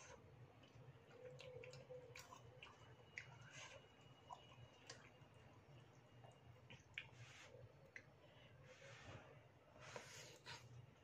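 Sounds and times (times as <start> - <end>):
person chewing noodle soup: 0.0 - 8.2.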